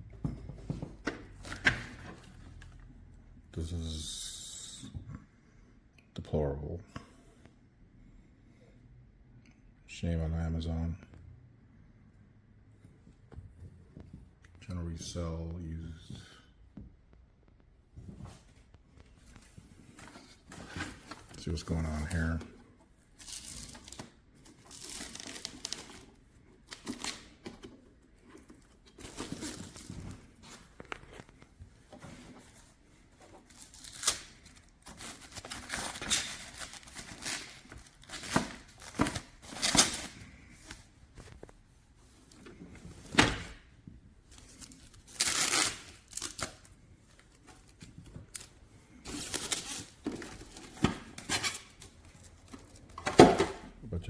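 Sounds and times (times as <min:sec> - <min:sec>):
cardboard and plastic rustling: 0:00.2 - 0:02.9, 0:17.5 - 0:53.8.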